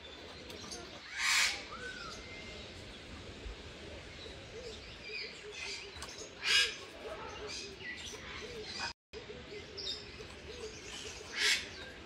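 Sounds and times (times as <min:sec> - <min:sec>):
faint birds chirping: 0:00.0 - 0:12.0
bird harsh squawk: 0:01.0 - 0:02.0.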